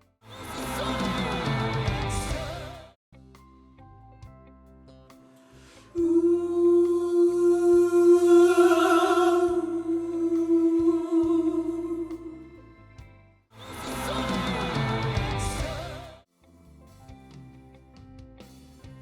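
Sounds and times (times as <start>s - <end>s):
soprano voice singing long note: 6.0s - 12.4s.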